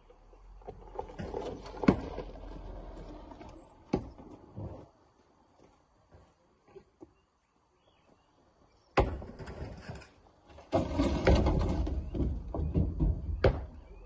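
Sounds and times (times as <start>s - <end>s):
rocks clattering and knocking: 0.5s - 4.9s, 9.0s - 14.0s
rock crashing into truck bed: 9.0s - 13.9s.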